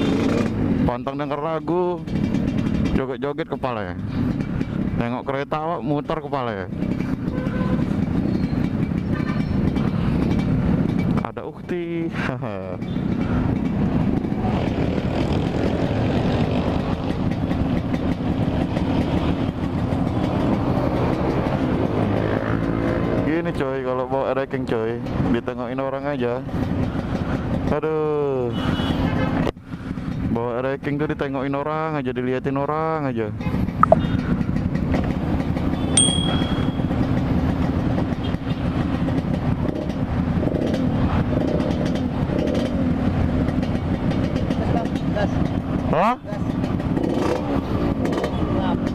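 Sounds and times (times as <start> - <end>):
two-stroke motorcycle engine running: 1.6 - 23.4, 26.4 - 27.7, 33.4 - 48.9
short high-pitched beep: 33.8 - 34.1, 36.0 - 36.9.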